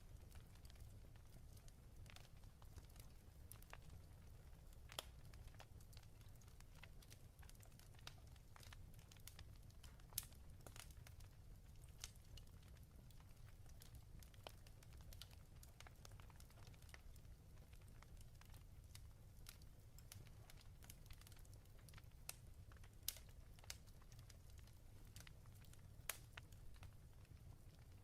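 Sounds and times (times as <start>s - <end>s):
fireplace crackling: 0.0s - 28.0s.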